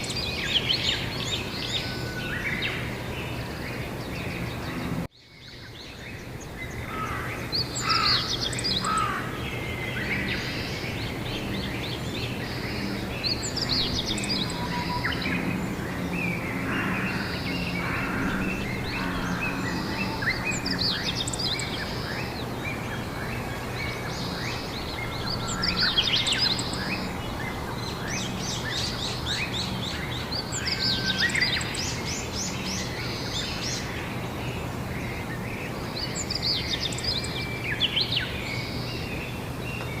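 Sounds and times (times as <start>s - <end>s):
songbirds singing and chirping: 0.0s - 40.0s
steady low hum: 8.4s - 33.3s.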